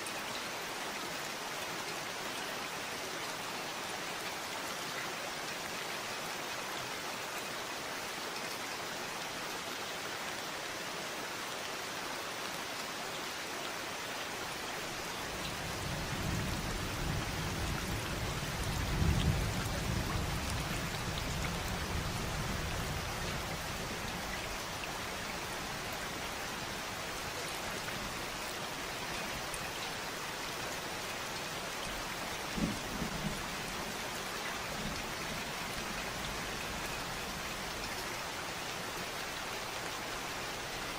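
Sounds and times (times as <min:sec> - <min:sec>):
steady rain: 0:00.0 - 0:40.9
distant thunder rumble: 0:15.2 - 0:24.6.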